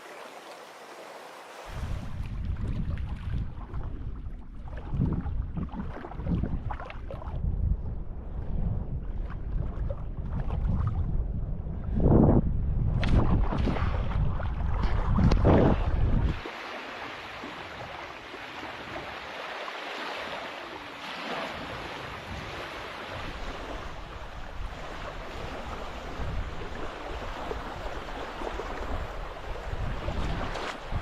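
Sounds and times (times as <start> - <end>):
small waves in shallows: 0.0 - 7.5, 13.0 - 31.0
wind buffeting microphone: 1.7 - 16.4, 21.5 - 31.0.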